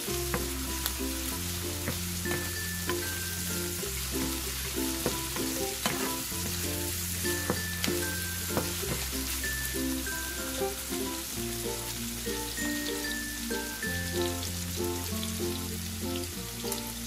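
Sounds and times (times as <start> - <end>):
food sizzling in hot oil: 0.0 - 17.0
light background music: 0.0 - 17.0
spatula knocking on pan: 0.2 - 0.9, 1.8 - 9.2.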